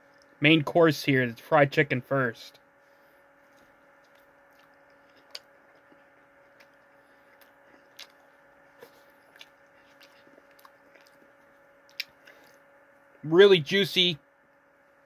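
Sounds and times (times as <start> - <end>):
faint steady hum: 0.0 - 15.0
person chewing crunchy food: 3.3 - 12.7.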